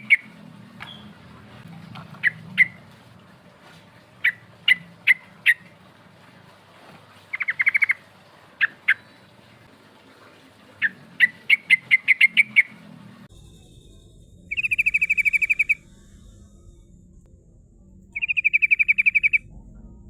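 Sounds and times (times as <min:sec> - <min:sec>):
bird chirping: 0:07.3 - 0:08.0, 0:14.5 - 0:15.9, 0:18.2 - 0:19.5.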